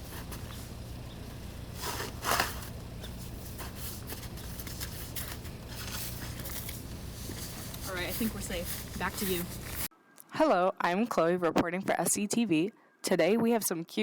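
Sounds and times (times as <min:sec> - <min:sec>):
low hum: 0:00.0 - 0:09.9
snow shovel scraping snow: 0:01.7 - 0:09.9.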